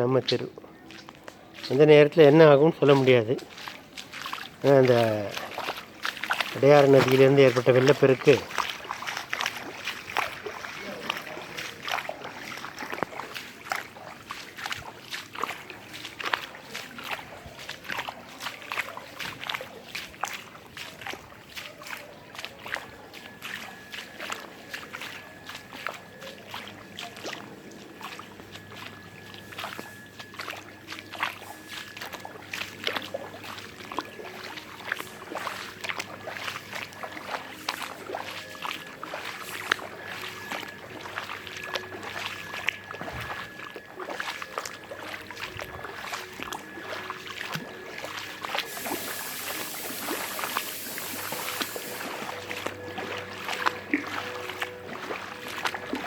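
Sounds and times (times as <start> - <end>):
water sloshing and splashing: 0.0 - 56.0.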